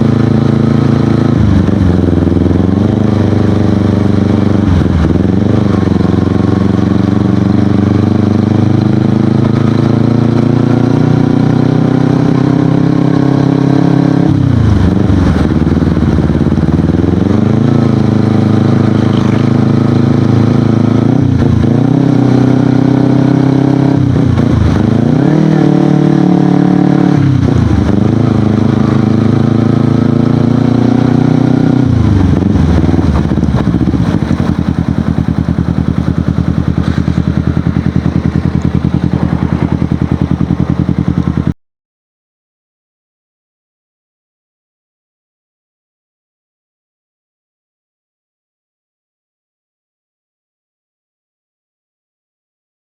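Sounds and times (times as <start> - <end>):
motorcycle engine revving: 0.0 - 41.6.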